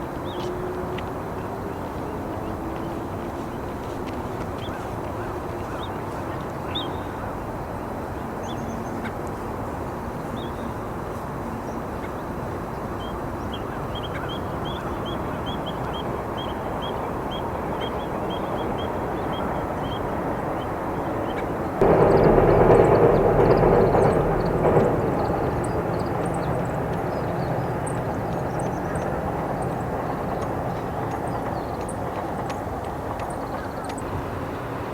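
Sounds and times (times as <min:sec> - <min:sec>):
background rumble: 0:21.7 - 0:33.8.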